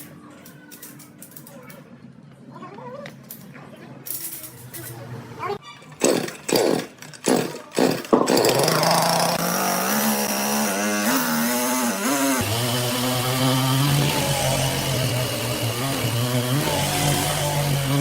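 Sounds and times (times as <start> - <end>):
saw engine running: 6.1 - 18.0.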